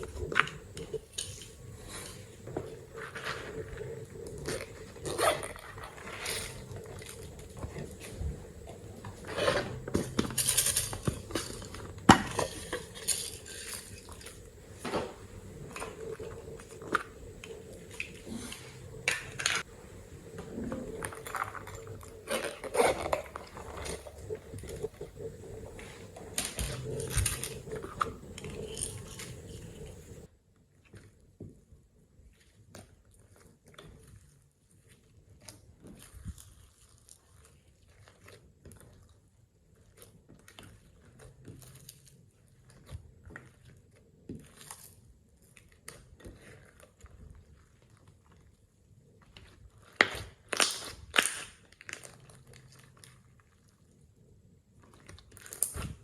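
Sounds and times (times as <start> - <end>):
slime squelching: 0.0 - 30.3, 32.2 - 56.0
utensil scraping container: 0.0 - 30.3.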